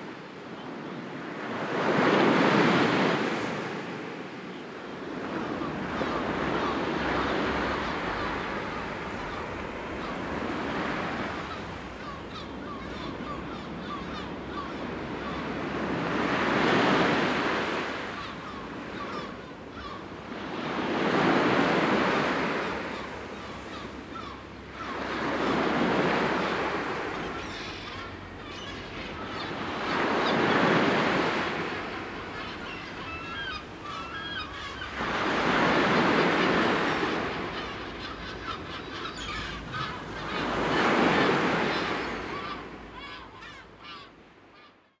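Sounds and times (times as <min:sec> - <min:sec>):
sea waves breaking: 0:20.1 - 0:43.5.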